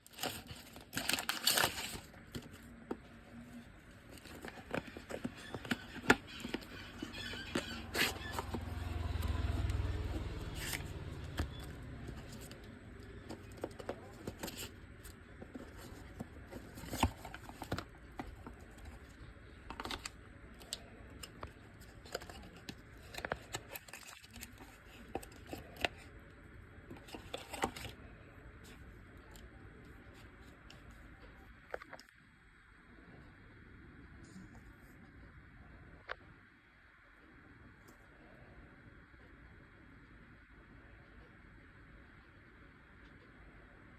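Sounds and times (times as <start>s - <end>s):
packaging clicks taps and scraping: 0.0s - 26.2s, 26.9s - 28.0s.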